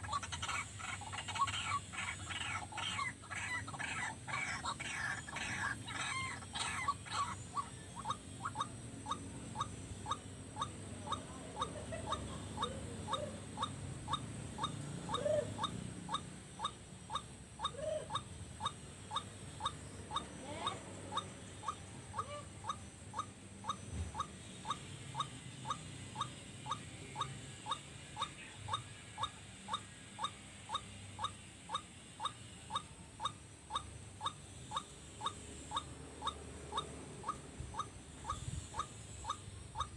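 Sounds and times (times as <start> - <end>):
waterhen calling: 0.0 - 9.2.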